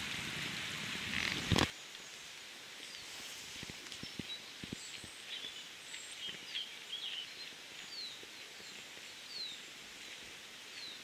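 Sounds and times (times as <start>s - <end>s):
background hiss: 0.0s - 11.0s
woodland birds singing: 4.0s - 11.0s.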